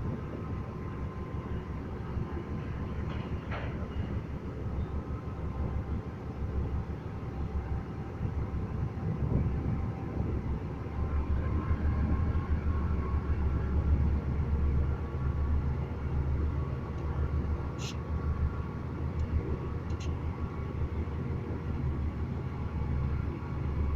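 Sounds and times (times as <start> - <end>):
diesel engine rumbling: 0.0 - 23.9.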